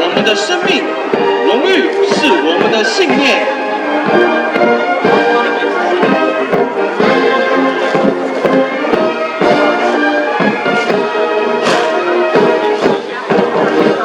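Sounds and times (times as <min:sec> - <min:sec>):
military band playing: 0:00.0 - 0:14.0
sharp percussive hits: 0:10.4 - 0:13.7.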